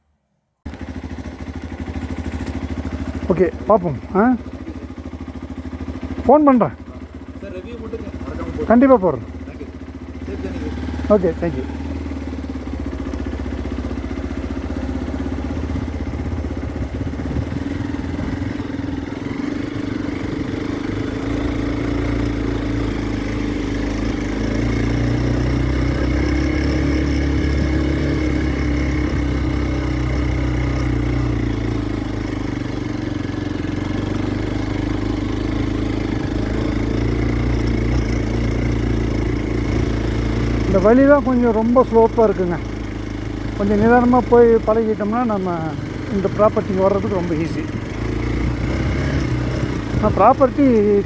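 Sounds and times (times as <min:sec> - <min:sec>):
motorcycle engine humming: 0:00.6 - 0:51.0.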